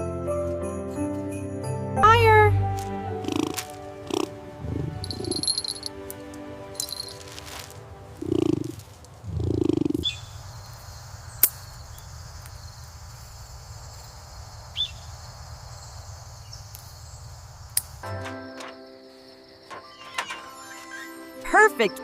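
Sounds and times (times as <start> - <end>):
low animal calls: 3.1 - 5.4, 8.2 - 10.3.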